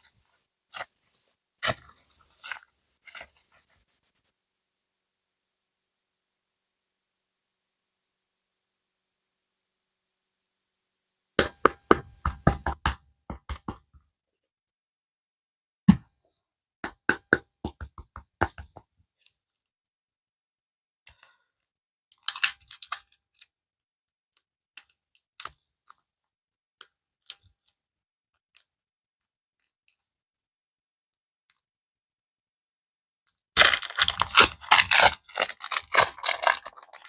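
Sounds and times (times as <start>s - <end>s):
clicks and taps of packaging: 16.8s - 18.9s, 33.6s - 37.0s.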